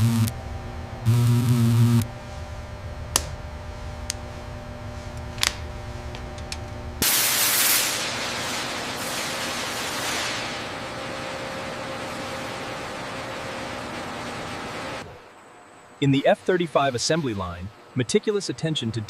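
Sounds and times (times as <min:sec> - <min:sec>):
low steady hum: 0:00.0 - 0:07.0
loud hiss: 0:07.0 - 0:14.7.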